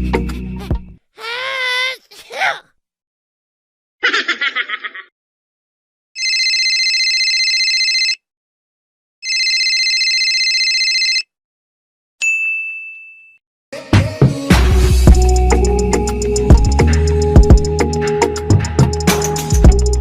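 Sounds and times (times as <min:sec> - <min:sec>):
telephone ringing: 0:06.2 - 0:08.2, 0:09.2 - 0:11.3
bright ding: 0:12.2 - 0:13.4
music with a beat: 0:13.8 - 0:20.0.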